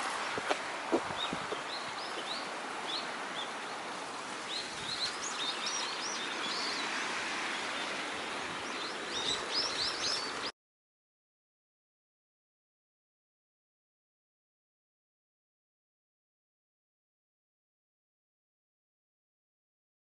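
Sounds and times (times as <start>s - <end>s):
outdoor background hiss: 0.0s - 10.5s
small birds chirping: 0.4s - 10.5s.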